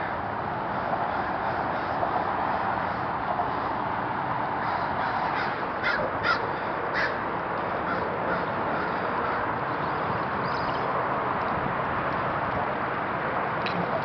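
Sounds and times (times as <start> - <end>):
bird harsh calls: 4.6 - 7.2, 7.8 - 10.9.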